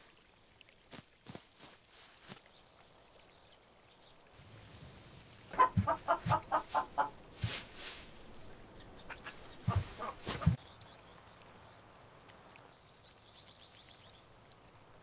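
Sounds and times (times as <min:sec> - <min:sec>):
chicken clucking: 0:05.5 - 0:07.2, 0:09.1 - 0:10.6
dull knocks: 0:05.6 - 0:06.6.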